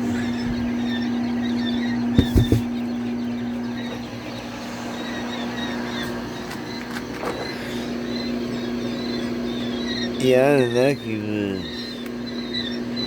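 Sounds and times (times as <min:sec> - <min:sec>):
mechanical hum: 0:00.0 - 0:13.0
young birds peeping: 0:00.0 - 0:13.0
quick knocks: 0:02.2 - 0:02.7.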